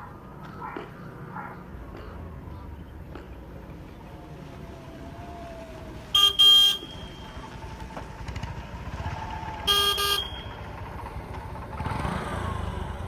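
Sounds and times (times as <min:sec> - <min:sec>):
passing street traffic: 0:00.0 - 0:13.0
vehicle horn double toot: 0:06.1 - 0:07.6, 0:09.7 - 0:10.8.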